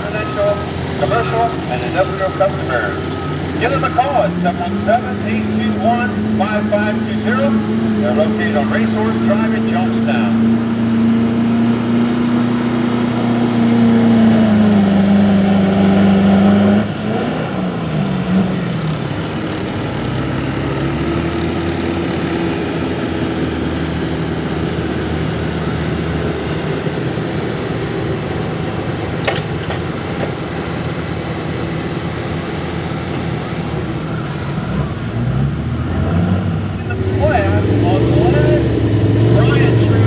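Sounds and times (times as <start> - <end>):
truck engine revving: 0.0 - 40.0.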